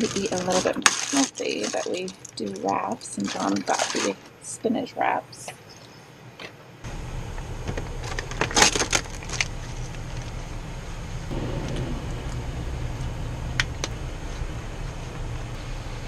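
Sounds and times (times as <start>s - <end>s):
steady low rumble: 6.9s - 16.0s.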